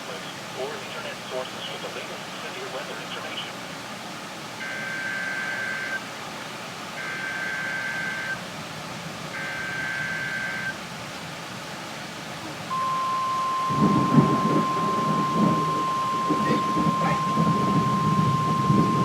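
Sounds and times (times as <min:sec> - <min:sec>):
buzzing data tones: 0:04.6 - 0:06.0, 0:07.0 - 0:08.4, 0:09.4 - 0:10.8, 0:12.7 - 0:19.0
steady warning alarm tone: 0:04.6 - 0:06.1, 0:06.9 - 0:08.4, 0:09.3 - 0:10.8, 0:12.6 - 0:19.0.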